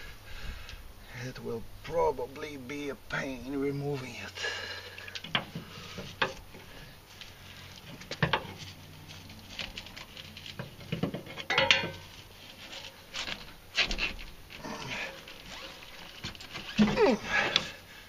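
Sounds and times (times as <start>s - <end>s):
hand tools clinking on metal exhaust: 9.8s - 12.2s.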